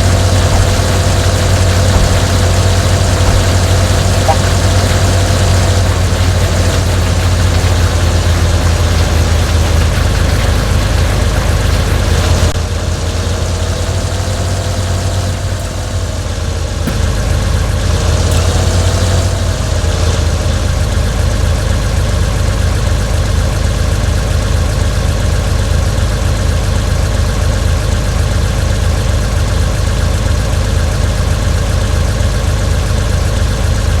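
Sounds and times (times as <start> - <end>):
engine humming: 0.0 - 24.1.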